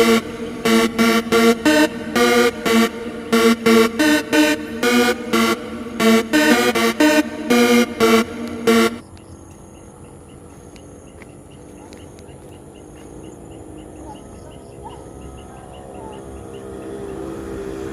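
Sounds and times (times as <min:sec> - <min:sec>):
electronic music: 0:00.0 - 0:09.0
steady high drone: 0:00.0 - 0:09.0
low motor hum: 0:00.0 - 0:09.4.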